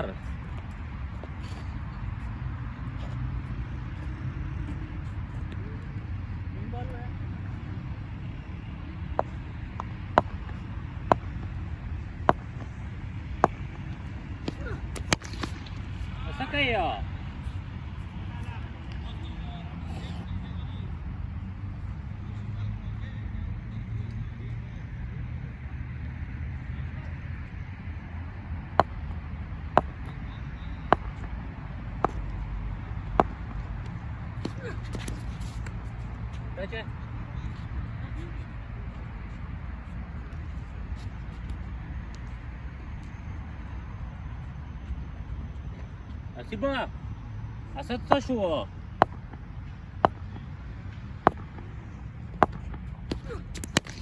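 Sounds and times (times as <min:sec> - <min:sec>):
low rumble of wind: 0:00.0 - 0:54.0
low outdoor rumble: 0:26.6 - 0:42.9.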